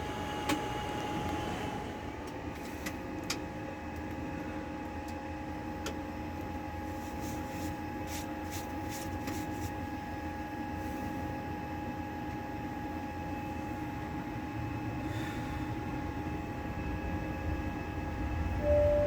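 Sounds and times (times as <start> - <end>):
machine hum and whine: 0.0 - 19.0
held tones: 18.6 - 19.0.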